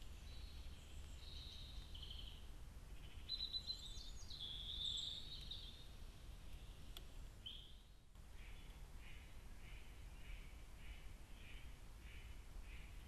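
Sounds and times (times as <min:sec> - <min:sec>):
songbirds singing: 0:00.0 - 0:13.0
steady background hiss: 0:00.0 - 0:13.0
faint click: 0:06.9 - 0:07.1.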